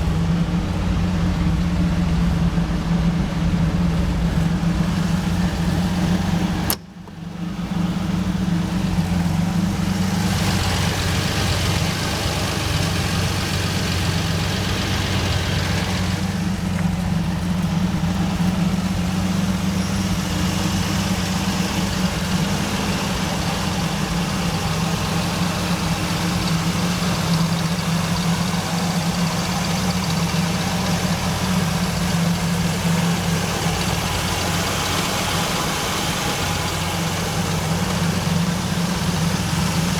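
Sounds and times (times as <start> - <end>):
car engine idling: 0.0 - 39.9
brief click: 6.7 - 7.2.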